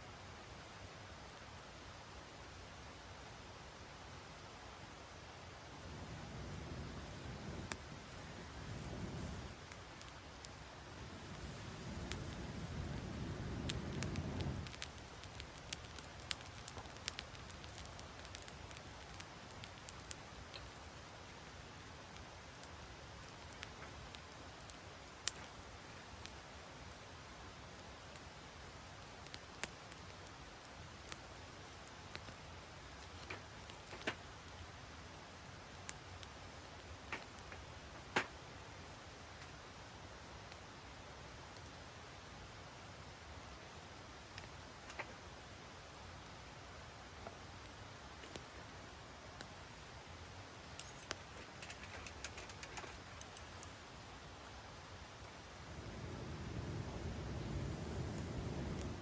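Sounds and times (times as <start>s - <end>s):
low steady hiss: 0.0s - 59.0s
campfire crackling and popping: 0.1s - 59.0s
low rumble: 55.6s - 59.0s.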